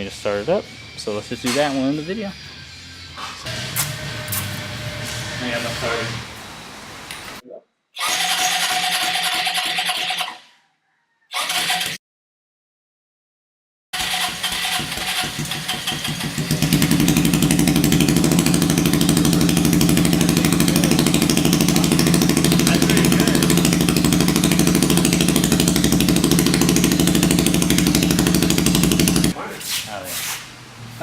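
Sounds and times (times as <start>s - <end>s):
go-kart engine running: 14.0s - 29.4s.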